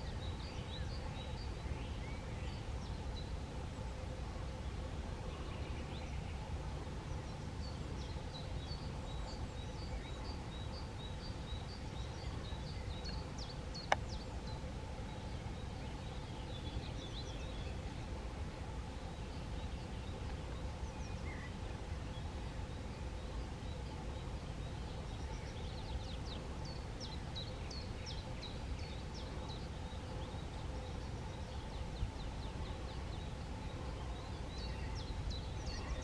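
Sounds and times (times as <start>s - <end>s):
small bird singing: 0.0s - 36.0s.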